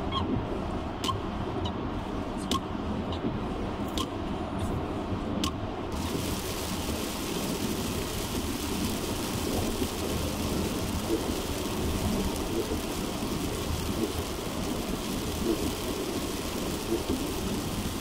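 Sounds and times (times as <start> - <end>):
road and tyre noise: 0.0 - 18.0
heavy rain on a car: 5.9 - 18.0.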